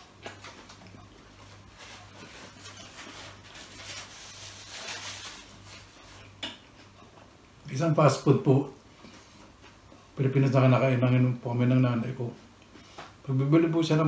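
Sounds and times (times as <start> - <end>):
paper napkin rustling: 0.0 - 6.4.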